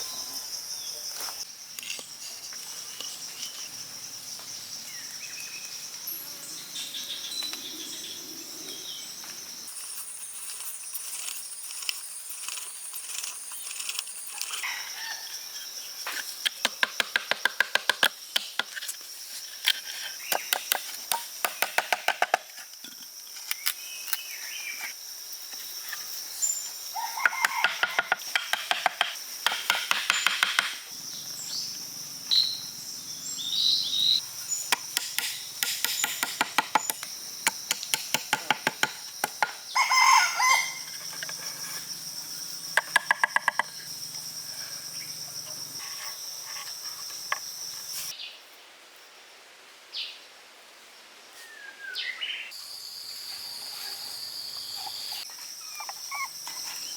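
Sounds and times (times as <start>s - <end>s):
high insect-like drone: 7.6s - 16.5s.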